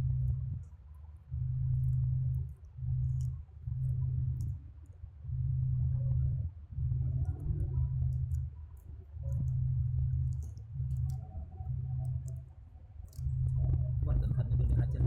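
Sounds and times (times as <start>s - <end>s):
low hum: 0.0s - 15.0s
small parts clicking and tapping: 10.2s - 11.2s, 12.0s - 13.6s.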